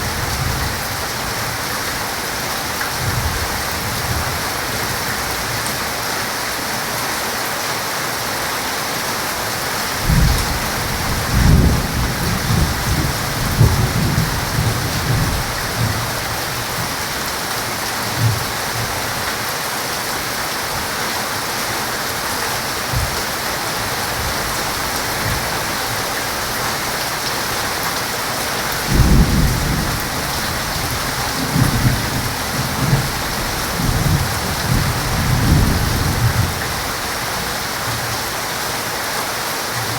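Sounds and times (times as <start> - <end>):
heavy rain hissing: 0.0 - 39.9
thunder rumbling: 10.0 - 16.9, 28.8 - 36.8.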